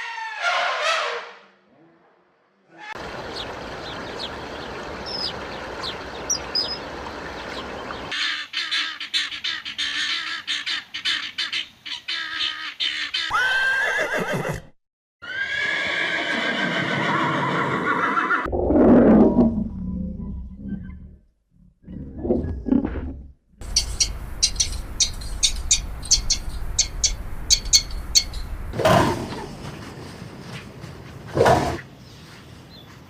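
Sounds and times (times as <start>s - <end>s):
farm animal calls: 2.8s - 14.6s, 23.6s - 29.5s.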